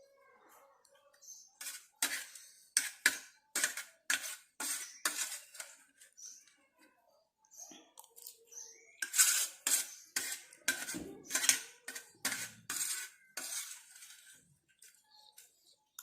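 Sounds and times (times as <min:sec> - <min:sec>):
cutlery clinking against a dish: 0:09.0 - 0:14.2.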